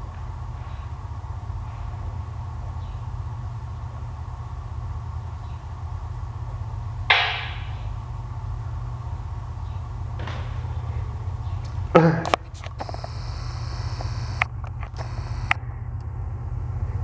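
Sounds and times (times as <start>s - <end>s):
low engine rumble: 0.0s - 17.0s
sharp hissing burst: 12.8s - 14.4s.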